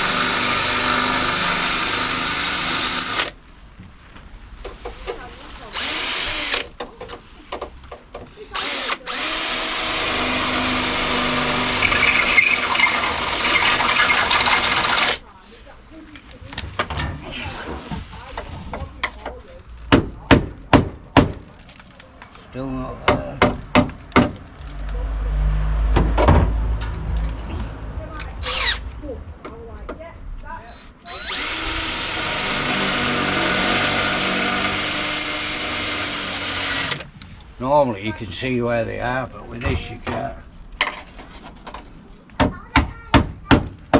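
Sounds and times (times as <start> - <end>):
power drill on steel panel: 0.0 - 3.4, 5.7 - 6.7, 8.4 - 15.2, 28.4 - 28.8, 30.6 - 37.2.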